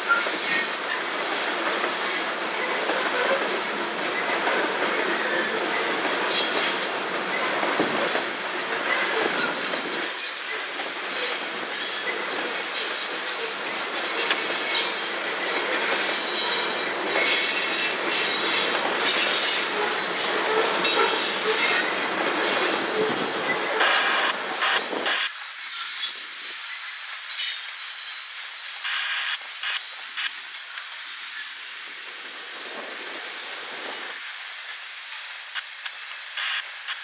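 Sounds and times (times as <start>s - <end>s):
wheels clicking over rail joints: 0.0s - 28.8s
train wheels squealing: 0.0s - 30.0s
rumble of train cars: 0.0s - 37.0s.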